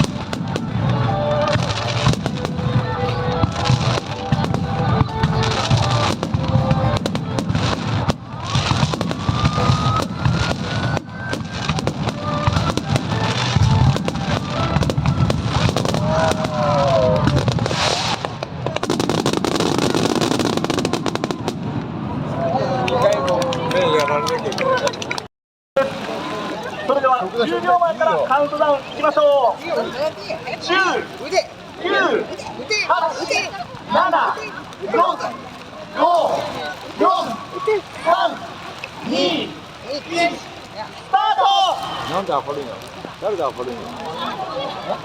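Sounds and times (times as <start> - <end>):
music playing: 0.0 - 17.4
fireworks bangs and crackles: 0.0 - 31.6, 41.9 - 45.0.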